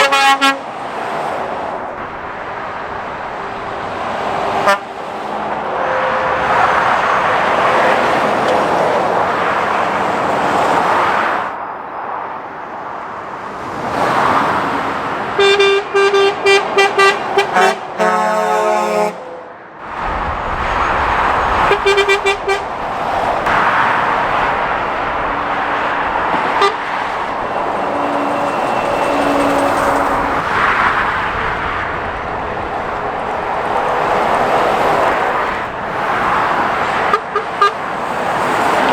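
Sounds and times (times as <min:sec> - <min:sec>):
vehicle horn toots: 0:00.0 - 0:00.6, 0:04.6 - 0:04.9, 0:05.7 - 0:08.6, 0:15.4 - 0:19.4, 0:21.6 - 0:22.7, 0:26.4 - 0:31.5, 0:37.0 - 0:37.8
vehicles passing at speed: 0:00.0 - 0:38.9.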